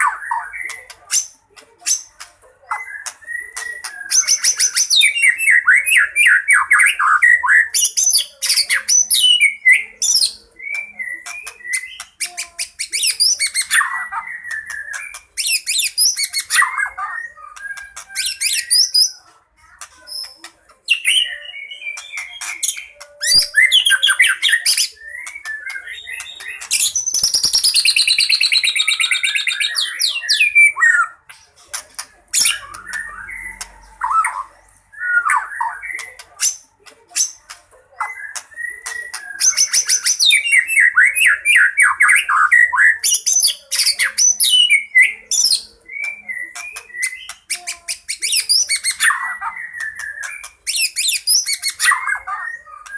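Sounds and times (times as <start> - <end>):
bird singing varied song: 0.0 - 52.9.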